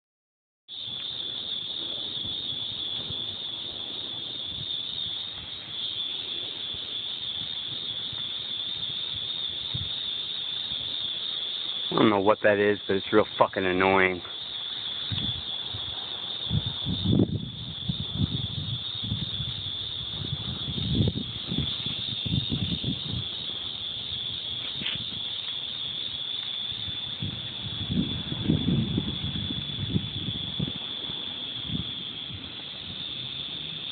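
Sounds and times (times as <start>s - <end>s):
wind buffeting microphone: 0.8s - 11.4s, 14.0s - 33.9s.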